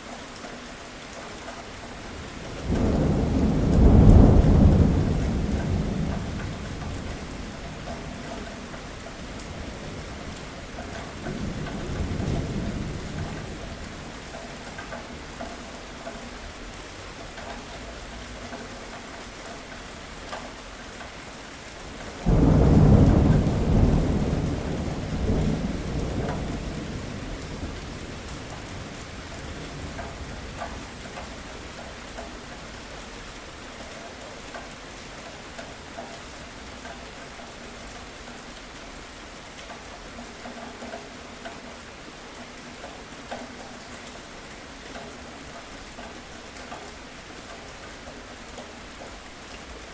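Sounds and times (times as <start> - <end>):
steady rain falling: 0.0 - 49.9
thunder rumbling: 2.5 - 13.9, 22.2 - 31.7
loud thunderclap: 2.6 - 7.1, 22.2 - 29.0.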